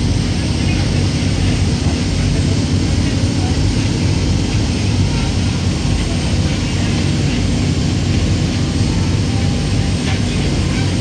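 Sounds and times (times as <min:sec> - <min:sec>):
ferry engine drone: 0:00.0 - 0:11.0.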